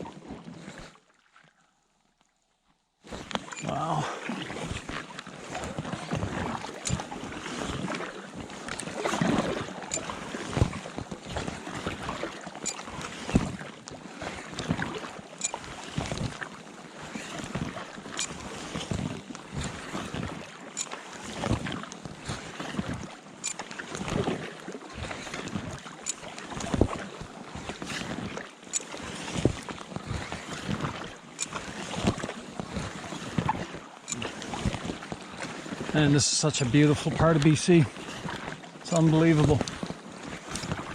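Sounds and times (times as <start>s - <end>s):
paddle splashing in water: 0.0s - 40.9s.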